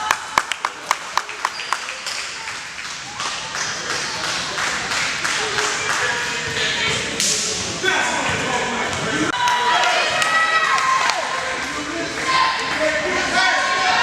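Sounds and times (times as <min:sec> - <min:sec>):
crowd voices echoing in a hall: 0:00.0 - 0:14.0.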